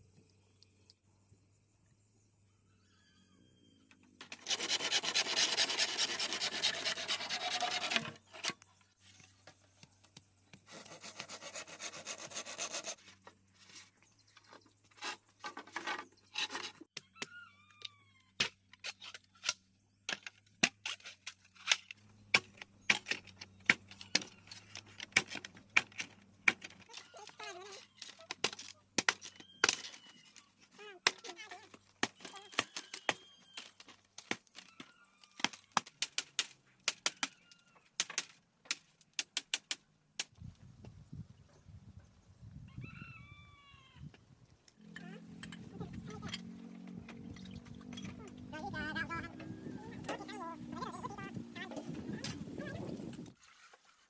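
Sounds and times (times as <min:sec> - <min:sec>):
hand saw cutting wood: 0:04.2 - 0:08.6, 0:10.7 - 0:13.0
small birds chirping: 0:47.0 - 0:53.0.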